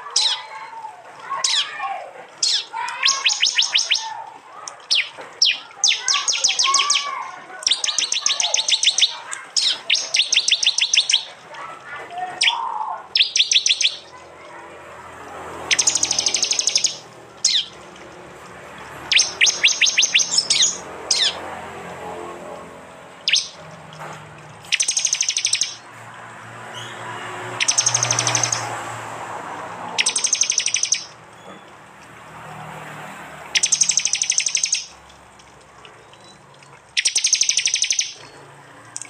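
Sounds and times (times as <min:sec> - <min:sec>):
bird calling in rapid bursts: 0:00.0 - 0:14.6, 0:15.4 - 0:17.8, 0:18.8 - 0:21.5, 0:23.2 - 0:23.8, 0:24.6 - 0:25.9, 0:26.8 - 0:28.9, 0:29.9 - 0:31.6, 0:33.5 - 0:35.0, 0:36.0 - 0:39.0.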